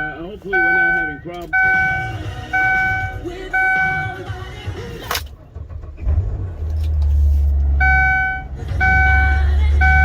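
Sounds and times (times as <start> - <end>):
warning chime: 0.0 - 4.2
van engine starting and idling: 0.0 - 10.0
ignition click: 0.5 - 5.4.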